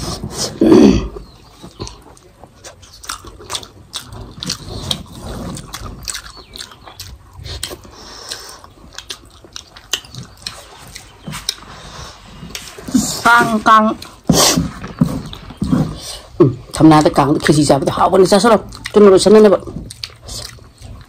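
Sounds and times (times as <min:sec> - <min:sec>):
people chewing: 0:00.0 - 0:21.0
wet mouth clicks: 0:01.8 - 0:11.7
lip smacks: 0:01.8 - 0:13.1.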